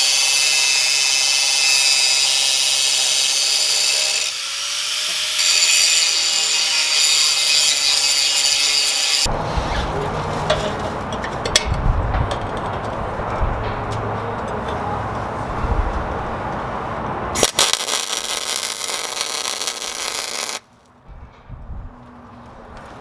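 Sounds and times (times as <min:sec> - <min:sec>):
angle grinder cutting metal: 0:00.0 - 0:11.0, 0:17.4 - 0:20.6
low rumble: 0:09.3 - 0:17.3, 0:21.0 - 0:22.8
clicks and knocks: 0:09.9 - 0:14.9.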